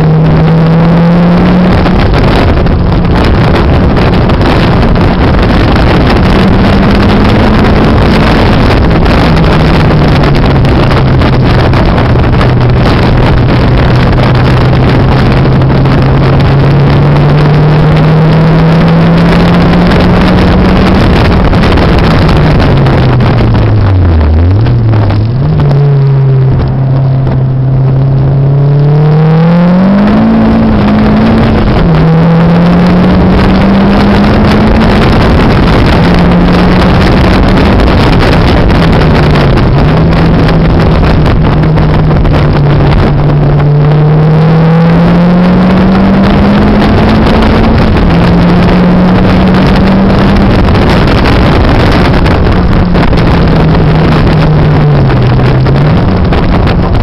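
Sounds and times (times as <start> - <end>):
car engine accelerating: 0.0 - 57.0
wind noise on microphone: 0.0 - 57.0.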